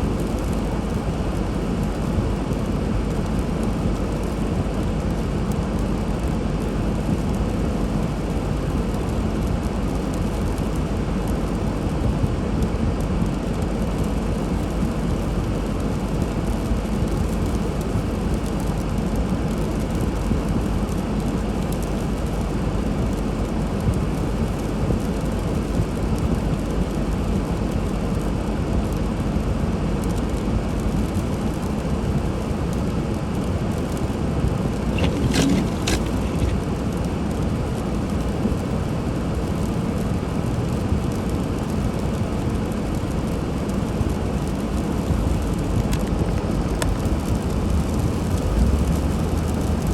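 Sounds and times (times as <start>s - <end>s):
car driving through snow: 33.9s - 39.0s, 46.6s - 49.9s.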